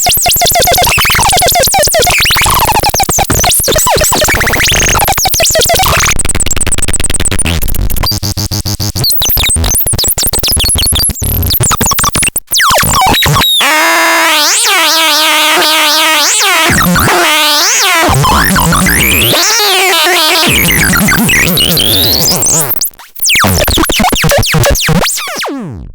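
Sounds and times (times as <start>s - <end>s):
stuttering buzzy synthesizer noise: 0.0s - 25.9s
synthesizer tones gliding: 12.6s - 22.8s.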